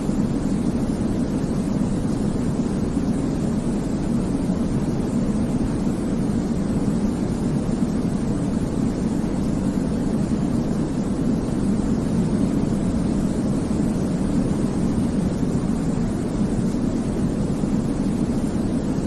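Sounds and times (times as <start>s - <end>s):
low-pitched white noise hiss: 0.0s - 19.0s.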